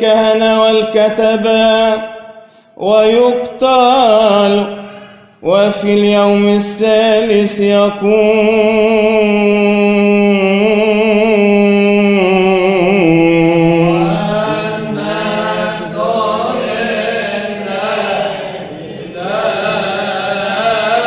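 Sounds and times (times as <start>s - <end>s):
man chanting a wordless melody: 0.0s - 16.8s.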